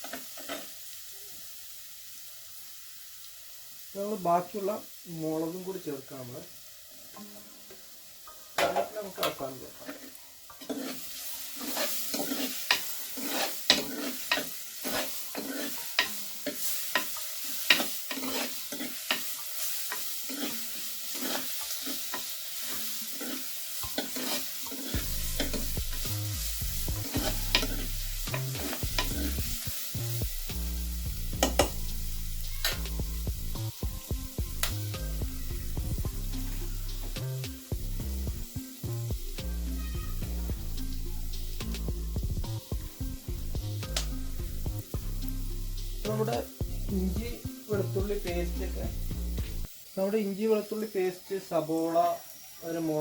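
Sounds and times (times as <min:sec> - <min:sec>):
paste sizzling in hot oil: 0:00.0 - 0:53.0
spoon scraping against pan: 0:08.7 - 0:30.0, 0:30.8 - 0:33.0.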